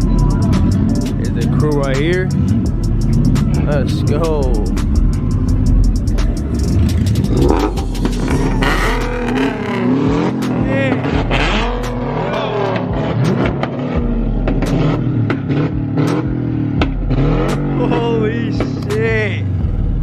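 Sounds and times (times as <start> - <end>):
car engines revving: 0.0 - 20.0
engines rumbling: 0.0 - 20.0.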